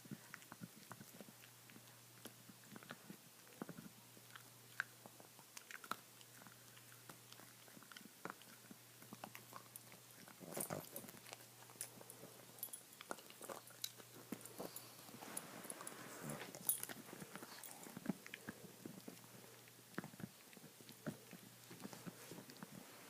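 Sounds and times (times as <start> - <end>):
dog gnawing on a bone: 0.0 - 22.8.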